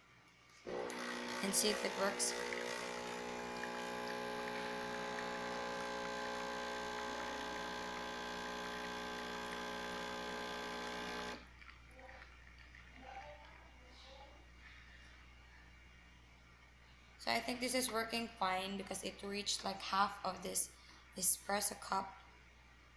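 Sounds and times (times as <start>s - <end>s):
espresso machine pump buzzing: 0.7s - 11.5s.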